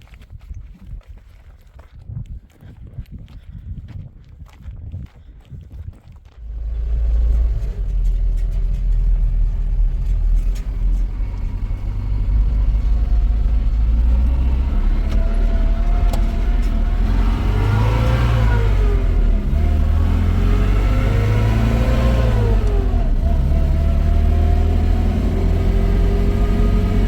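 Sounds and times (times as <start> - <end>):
vehicle engine rumbling and revving: 6.3 - 27.0.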